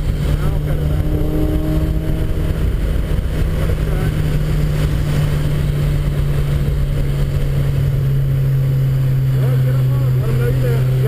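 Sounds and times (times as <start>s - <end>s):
car engine running under load: 0.0s - 11.0s
low road rumble: 0.0s - 11.0s.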